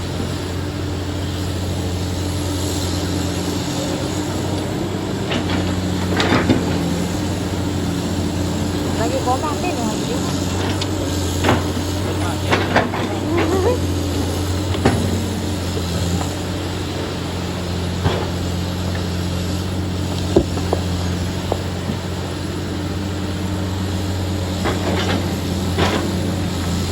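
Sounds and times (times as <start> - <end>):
vehicle engine humming: 0.0 - 26.9.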